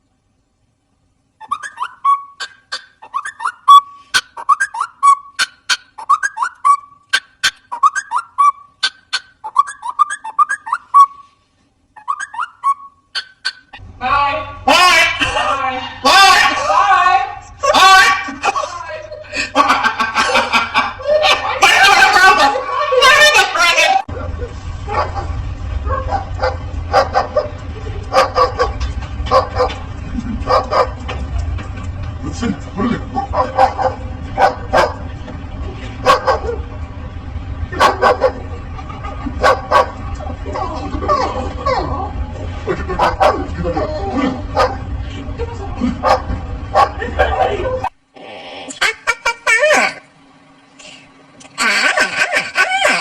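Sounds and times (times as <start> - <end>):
low background rumble: 0.0 - 11.0, 11.7 - 53.0
parrot whistling chirps: 1.4 - 11.4, 12.0 - 13.8
dog barking: 24.9 - 29.8, 30.4 - 31.0, 33.2 - 35.0, 36.0 - 36.7, 37.8 - 38.5, 39.4 - 40.0, 43.0 - 44.9, 46.0 - 47.0.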